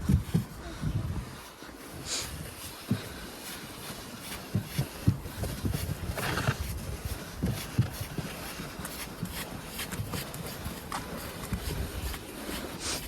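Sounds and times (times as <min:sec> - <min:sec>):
wind on microphone: 0:00.0 - 0:03.0, 0:04.6 - 0:08.2, 0:11.4 - 0:13.0
footsteps in deep snow: 0:00.0 - 0:13.0.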